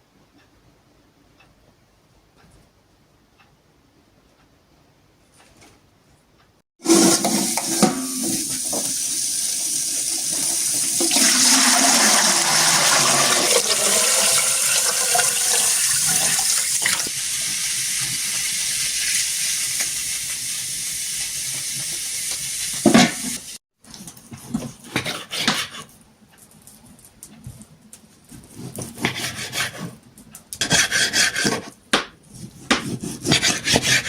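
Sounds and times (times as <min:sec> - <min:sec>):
water rushing and pouring: 0:09.7 - 0:17.1.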